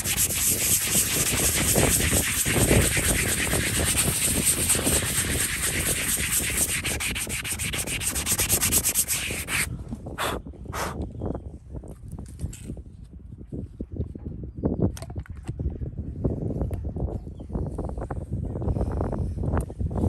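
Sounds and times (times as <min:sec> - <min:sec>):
abrasive tool rasping hoof: 0:00.0 - 0:11.0.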